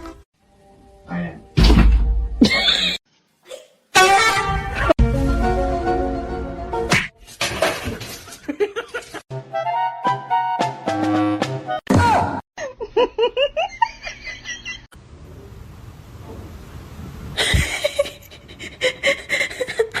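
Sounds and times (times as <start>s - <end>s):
people laughing: 8.3s - 9.2s.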